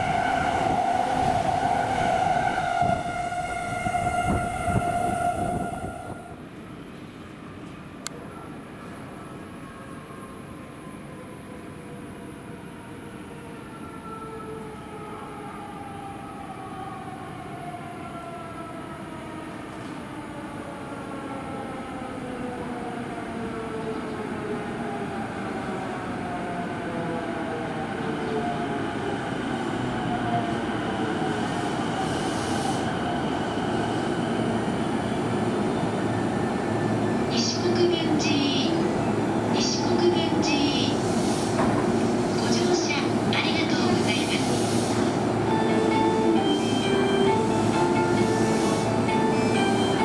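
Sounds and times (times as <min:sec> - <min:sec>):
train rumble: 0:00.0 - 0:07.0, 0:24.9 - 0:50.0.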